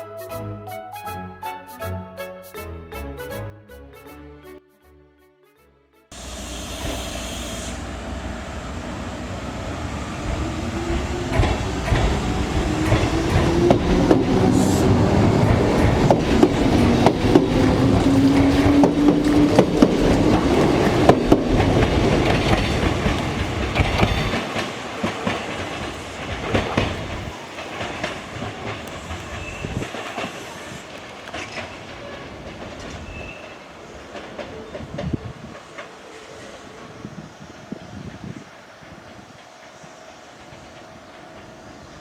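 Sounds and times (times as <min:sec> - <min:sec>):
electric train motor tone: 0:06.2 - 0:26.1
wheels clicking over rail joints: 0:06.2 - 0:36.2
train rumble: 0:06.2 - 0:42.0.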